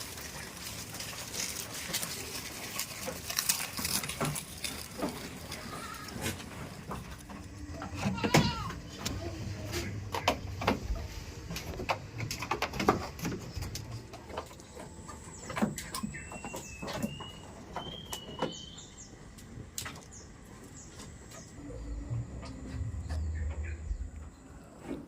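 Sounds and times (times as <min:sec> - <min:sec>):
bird chirping: 0:13.3 - 0:24.8.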